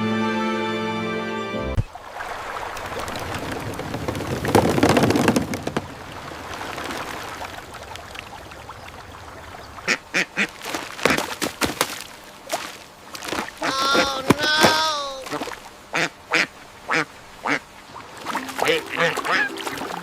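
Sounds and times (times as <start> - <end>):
water splashing: 1.9 - 9.9, 10.6 - 15.8, 17.8 - 20.0
duck-like quacks: 15.9 - 17.6.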